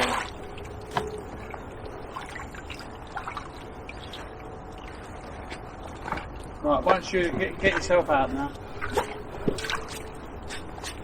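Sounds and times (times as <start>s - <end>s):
faint small splashes: 0.0s - 7.0s
river water trickling: 0.0s - 10.4s.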